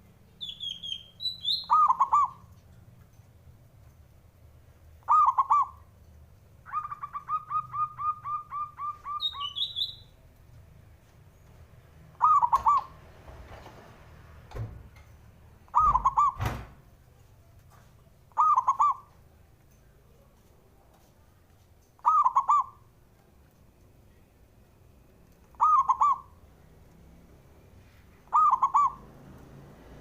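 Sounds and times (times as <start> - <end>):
dove cooing: 1.7 - 2.5, 5.0 - 5.8, 6.7 - 9.6, 12.2 - 13.0, 15.7 - 16.4, 18.3 - 19.1, 22.0 - 22.8, 25.5 - 26.4, 28.2 - 29.1.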